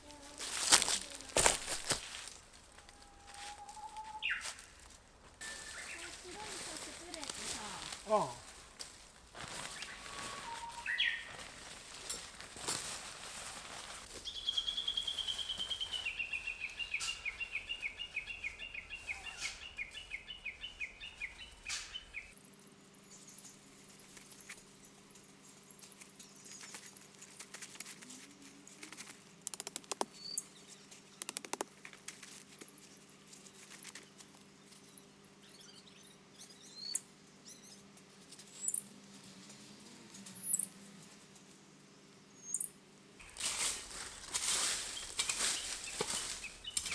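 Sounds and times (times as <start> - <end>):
light ticks and patters: 22.4 - 35.6.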